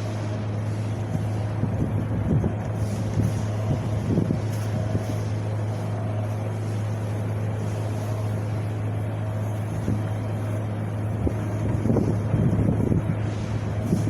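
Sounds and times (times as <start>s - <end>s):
wind buffeting microphone: 0.4s - 5.6s, 9.6s - 14.0s.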